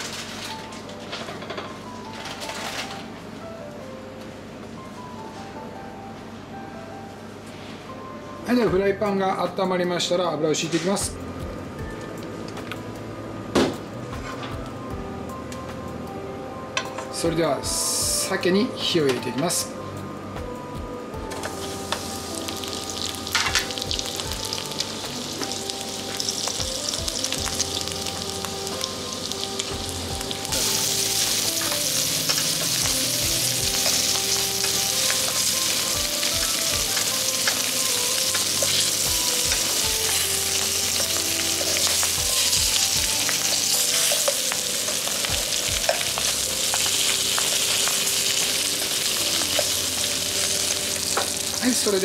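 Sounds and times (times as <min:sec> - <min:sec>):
fish sizzling in a frying pan: 0:00.0 - 0:00.7, 0:21.5 - 0:52.0.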